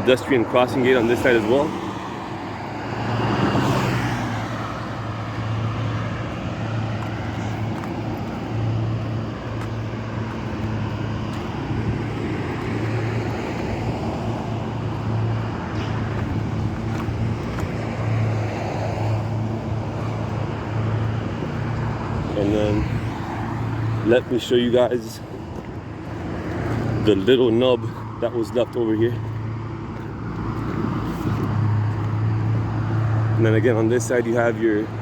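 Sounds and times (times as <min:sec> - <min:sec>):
car passing loudly: 0:00.0 - 0:24.9
highway traffic rumble: 0:00.0 - 0:35.0.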